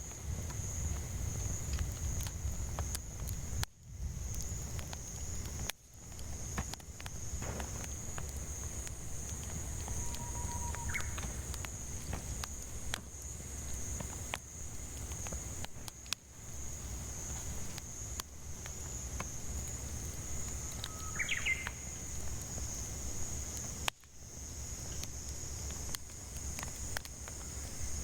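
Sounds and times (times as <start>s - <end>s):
cicada drone: 0.0s - 28.0s
firewood crackling and popping: 0.0s - 28.0s
bird call: 9.8s - 11.6s, 20.8s - 21.8s.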